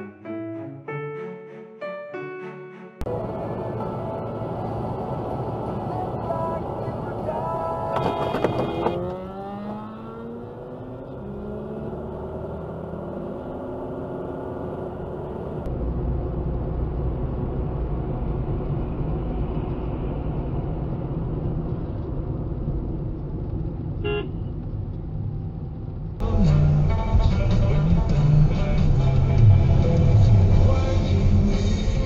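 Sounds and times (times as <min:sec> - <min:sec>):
vehicle engines and road rumble: 0:03.0 - 0:32.0
car horn toot: 0:07.9 - 0:09.0, 0:24.0 - 0:24.4.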